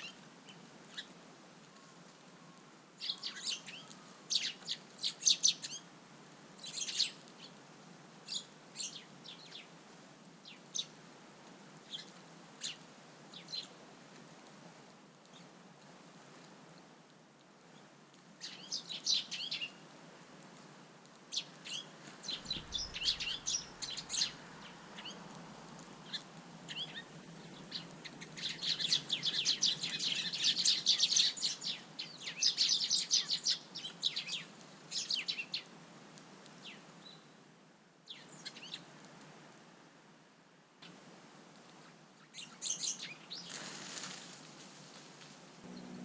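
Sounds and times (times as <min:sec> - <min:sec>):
small birds chirping: 0:01.7 - 0:05.9, 0:06.6 - 0:07.6, 0:08.3 - 0:09.7, 0:11.8 - 0:13.8, 0:17.7 - 0:19.8, 0:21.3 - 0:35.7, 0:38.1 - 0:38.9, 0:42.2 - 0:44.1.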